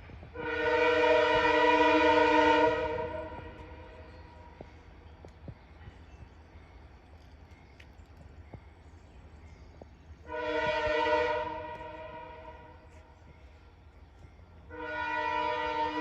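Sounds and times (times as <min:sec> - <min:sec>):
locomotive horn blast: 0:00.3 - 0:03.9, 0:10.2 - 0:12.8, 0:14.7 - 0:16.0.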